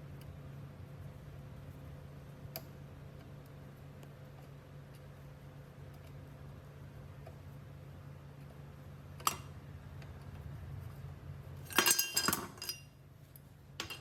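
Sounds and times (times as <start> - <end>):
low steady hum: 0.0 - 14.0
click: 2.5 - 4.1
small metal parts clinking: 11.6 - 12.9, 13.8 - 14.0.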